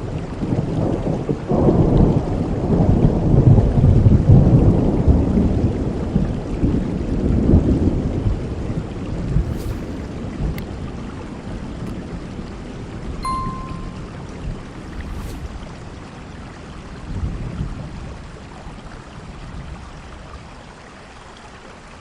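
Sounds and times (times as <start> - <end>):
heavy rain: 0.0 - 8.0.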